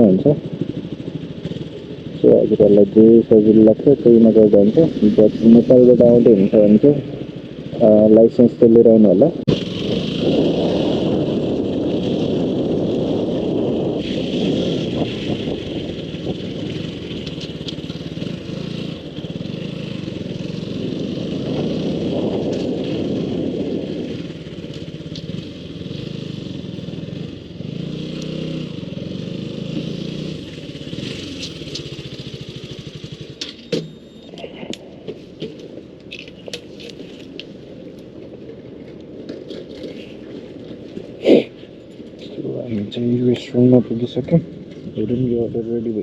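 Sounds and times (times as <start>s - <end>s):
motorcycle engine hum: 0.0s - 46.0s
rushing wind noise: 9.3s - 33.2s.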